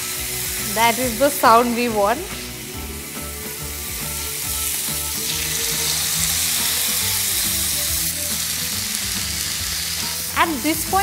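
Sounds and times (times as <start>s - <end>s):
chicken sizzling on grill pan: 0.0s - 11.0s.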